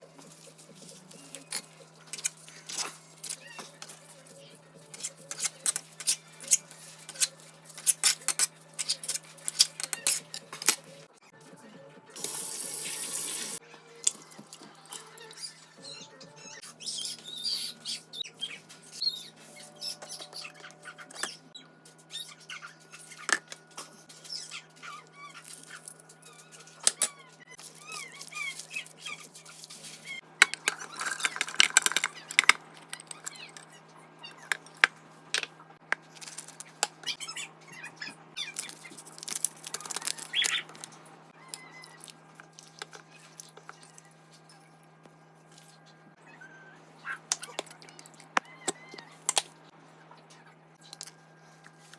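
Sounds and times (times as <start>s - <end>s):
utensils and dishes clicking: 0.2s - 4.2s, 4.8s - 11.1s, 12.2s - 15.6s, 22.6s - 37.2s, 38.4s - 44.0s.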